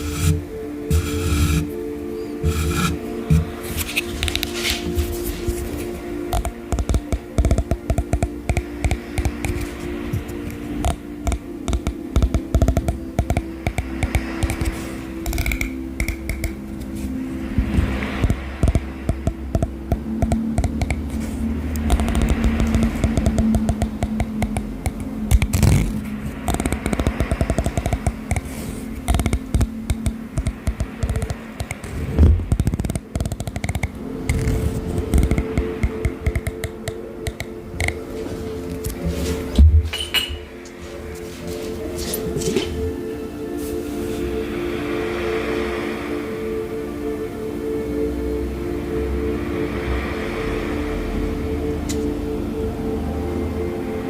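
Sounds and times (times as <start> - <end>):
fingers tapping on hard object: 0.0 - 1.7, 2.4 - 5.7, 6.3 - 16.6, 17.7 - 38.0
low hum: 0.0 - 54.0.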